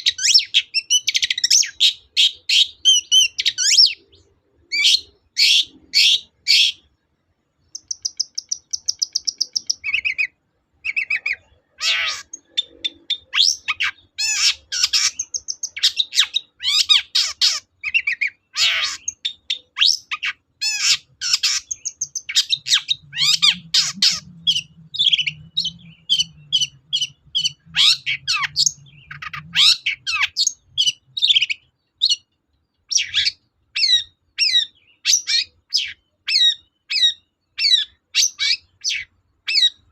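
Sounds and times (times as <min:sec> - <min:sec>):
shrike singing chirps and trills: 0:00.0 - 0:07.0, 0:07.6 - 0:39.9.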